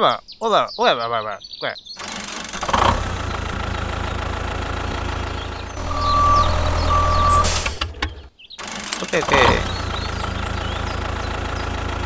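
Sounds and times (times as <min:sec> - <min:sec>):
engine running with low pulse: 0:02.0 - 0:12.0
high steady tone: 0:05.8 - 0:07.9.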